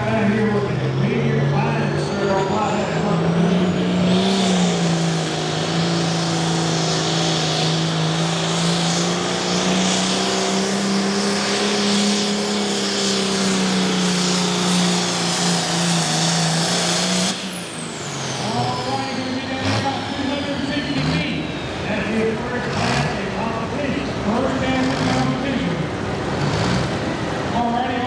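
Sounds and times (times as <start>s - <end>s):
engine running hard at high revs: 0.0s - 28.0s.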